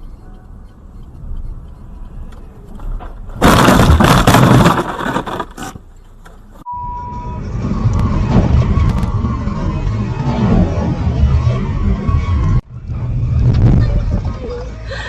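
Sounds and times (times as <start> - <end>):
low road rumble: 0.0 - 15.0
car crash impact crunching: 2.8 - 6.4
steady single-pitch tone: 6.7 - 8.2.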